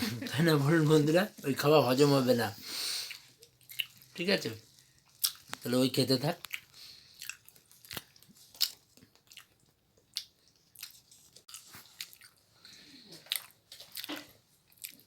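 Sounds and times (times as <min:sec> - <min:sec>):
chewing and lip-smacking clicks: 0:03.4 - 0:04.1, 0:05.0 - 0:05.6, 0:06.4 - 0:12.4, 0:13.2 - 0:15.0.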